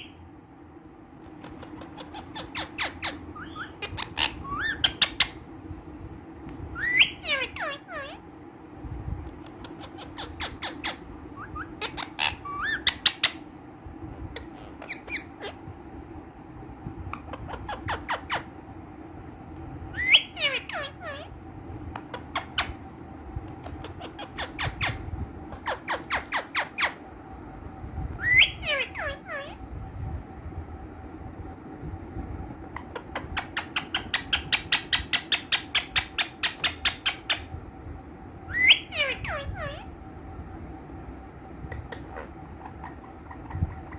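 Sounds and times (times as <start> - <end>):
low hum: 0.0 - 43.9
parakeets chirping and squawking: 1.4 - 5.4, 6.8 - 8.2, 9.3 - 13.4, 14.3 - 15.6, 17.2 - 18.5, 20.0 - 21.4, 22.0 - 22.9, 23.6 - 27.1, 28.2 - 29.6, 32.8 - 37.5, 38.5 - 39.9, 41.7 - 43.9
whistled bird calls: 6.8 - 7.4.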